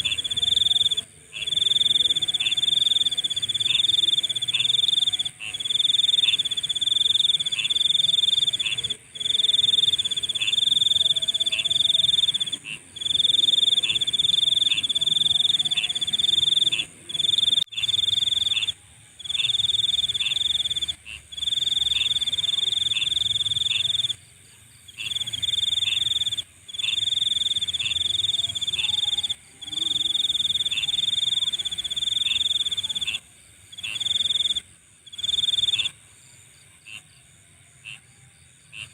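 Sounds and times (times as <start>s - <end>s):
high continuous insect buzz: 0.0s - 38.9s
insects trilling: 0.0s - 38.9s.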